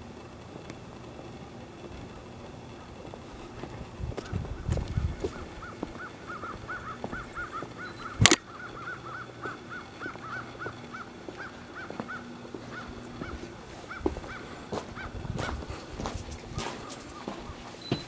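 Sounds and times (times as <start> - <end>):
faint footsteps: 0.0 - 18.0
bird chirping: 4.2 - 15.6, 16.4 - 18.0.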